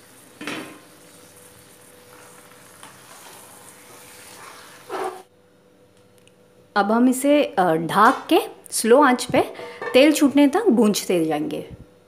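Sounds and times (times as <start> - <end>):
meat sizzling in a pan: 0.0 - 5.3
wooden spatula scraping pan: 2.1 - 5.3.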